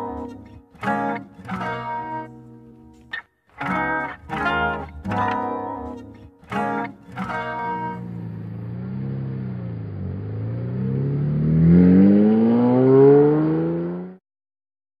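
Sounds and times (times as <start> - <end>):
car engine revving: 7.2 - 14.2.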